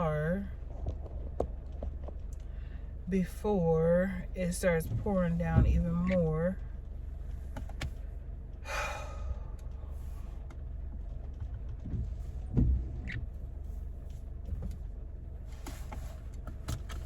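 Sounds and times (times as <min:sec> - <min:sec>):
low rumble of car: 0:00.0 - 0:17.0.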